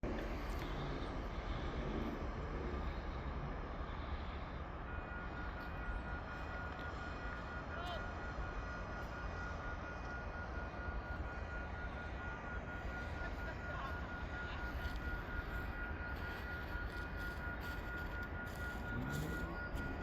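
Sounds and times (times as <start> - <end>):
distant train rumble: 0.0 - 20.0.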